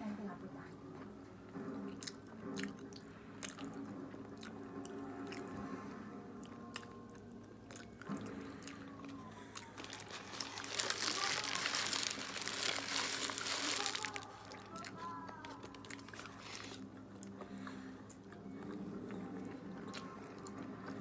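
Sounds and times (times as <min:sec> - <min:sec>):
faint music: 0:00.0 - 0:21.0
people chewing food: 0:01.0 - 0:21.0
paper rustling: 0:09.8 - 0:14.8, 0:15.4 - 0:16.8.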